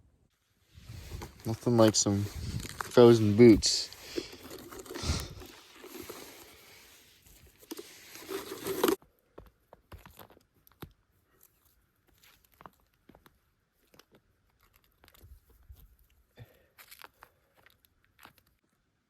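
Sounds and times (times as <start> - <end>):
frozen clothing rustling and crunching: 0.6 - 9.0
faint clicks and crinkles: 1.0 - 9.0, 9.9 - 18.8.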